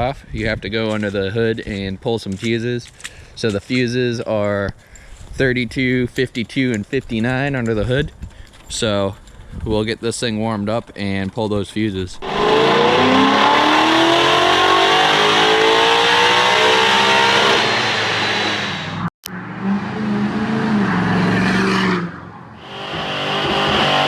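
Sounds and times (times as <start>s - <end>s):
diesel engine revving: 12.2s - 19.1s, 22.6s - 24.0s.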